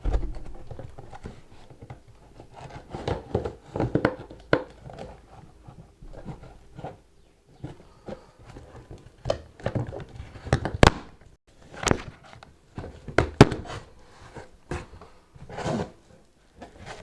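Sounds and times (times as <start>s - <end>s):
packaging rustling and scraping: 0.1s - 7.0s, 7.6s - 17.0s
cardboard box knocks and clicks: 2.8s - 5.1s, 11.8s - 13.9s.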